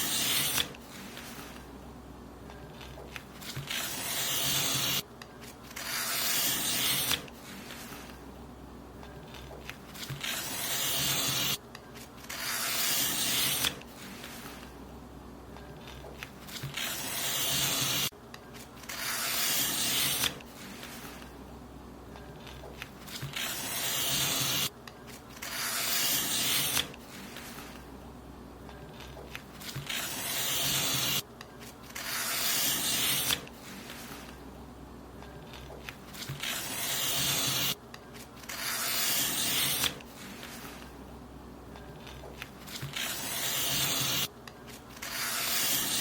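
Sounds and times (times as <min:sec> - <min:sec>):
paper being cut: 0:00.0 - 0:01.6, 0:02.8 - 0:05.0, 0:05.7 - 0:08.1, 0:09.3 - 0:14.7, 0:15.8 - 0:18.1, 0:18.8 - 0:21.3, 0:22.4 - 0:27.8, 0:29.0 - 0:31.2, 0:31.9 - 0:34.4, 0:35.5 - 0:37.8, 0:38.4 - 0:40.9, 0:42.0 - 0:46.0.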